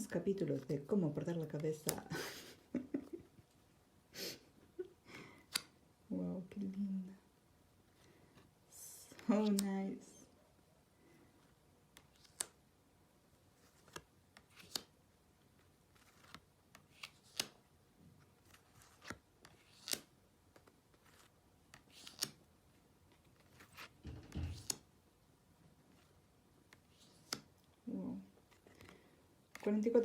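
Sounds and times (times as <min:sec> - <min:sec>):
card edges clicking and snapping: 0:05.4 - 0:05.7, 0:11.9 - 0:12.6, 0:13.7 - 0:15.0, 0:16.0 - 0:17.6, 0:18.8 - 0:22.4, 0:24.5 - 0:24.9.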